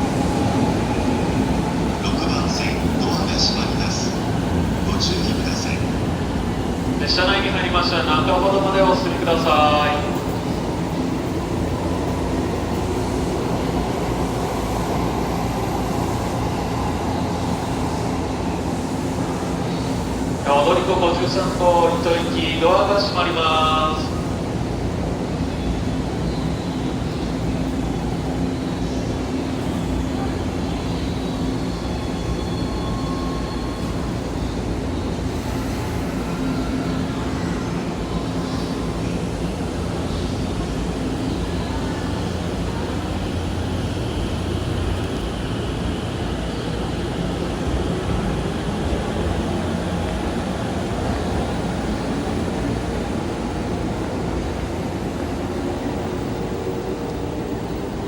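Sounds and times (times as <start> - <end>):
electric train hum and rumble: 0.0 - 58.0.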